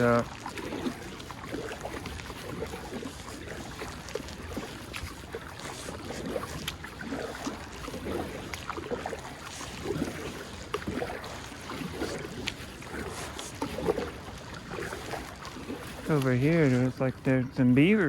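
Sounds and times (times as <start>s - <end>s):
water drips: 0.0s - 18.0s
water splashing around kayak: 0.0s - 18.0s.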